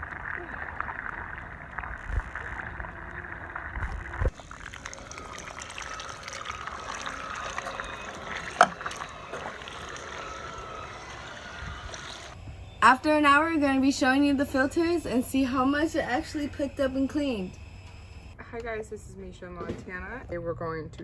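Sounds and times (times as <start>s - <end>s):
pool water sloshing and gurgling: 0.0s - 12.4s.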